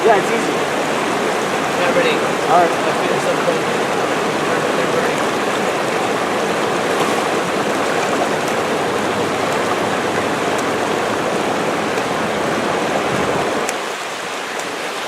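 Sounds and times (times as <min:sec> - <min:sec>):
rushing river water: 0:00.0 - 0:15.0.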